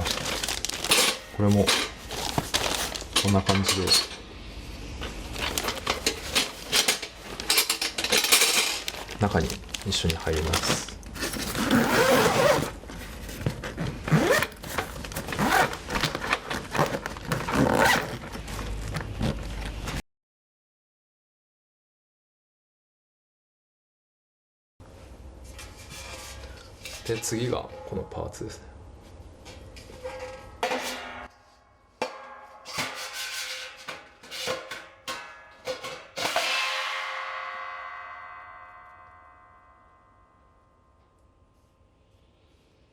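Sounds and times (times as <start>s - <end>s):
metal parts clinking: 5.4s - 9.2s
zipper being pulled closed: 11.2s - 12.7s, 14.1s - 14.6s, 15.2s - 16.0s, 16.7s - 18.2s
loud metal clang ringing: 30.0s - 31.4s, 32.0s - 33.0s, 36.2s - 41.0s.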